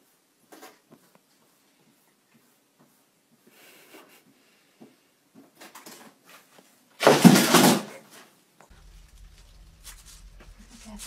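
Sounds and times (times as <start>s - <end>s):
loud clatter: 8.7s - 11.0s.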